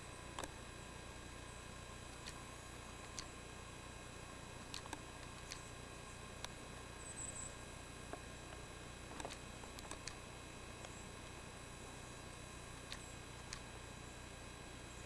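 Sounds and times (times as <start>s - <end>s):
faint hum and high whine: 0.0s - 15.0s
sharp little clicks: 0.3s - 0.6s, 2.1s - 3.4s, 4.7s - 5.7s, 8.1s - 11.4s, 12.8s - 13.8s.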